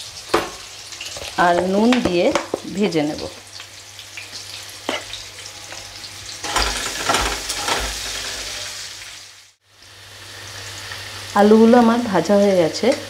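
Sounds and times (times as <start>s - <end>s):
potatoes sizzling in oil: 0.0s - 13.0s
spatula scraping: 4.9s - 8.8s.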